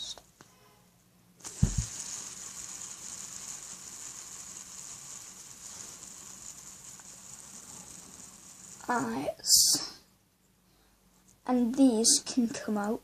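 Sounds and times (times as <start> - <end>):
fidget spinner whirring: 1.4 - 9.9.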